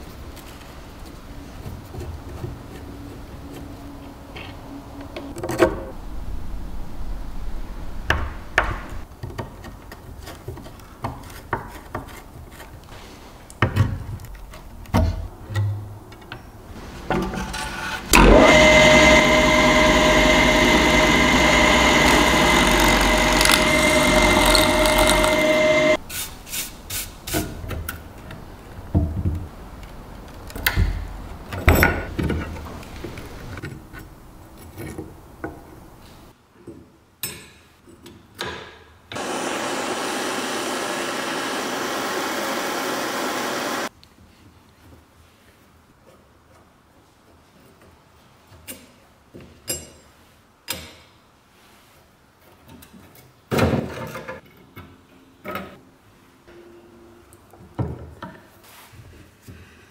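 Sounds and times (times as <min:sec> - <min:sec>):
power tool whining: 0:18.1 - 0:26.0, 0:39.2 - 0:43.9.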